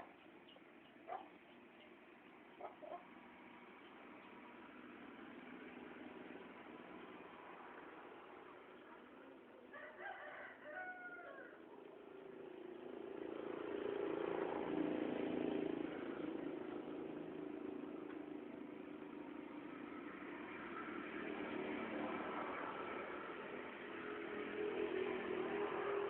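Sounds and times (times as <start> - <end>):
passing vehicle engine: 0.0 - 26.0
rooster crowing: 9.7 - 11.7.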